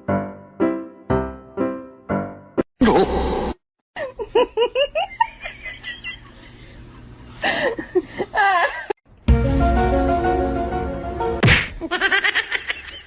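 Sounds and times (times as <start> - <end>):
music: 0.0 - 2.6, 9.1 - 11.4
person giggling: 2.8 - 3.2, 4.0 - 9.0.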